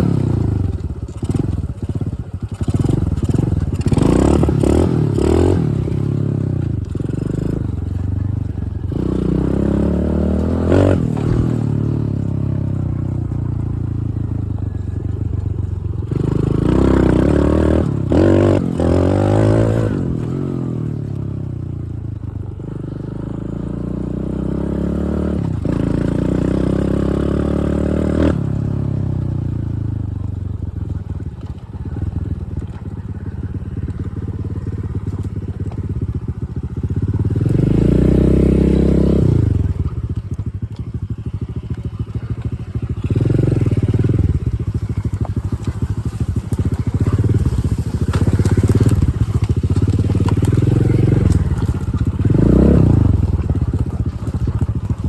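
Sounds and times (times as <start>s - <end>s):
dirt bike engine revving: 0.0s - 30.0s, 30.8s - 55.0s.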